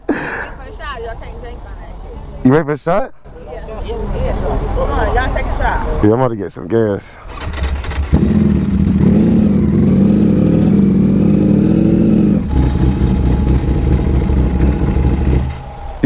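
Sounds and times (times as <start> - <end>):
motorcycle engine running: 7.4 - 15.8.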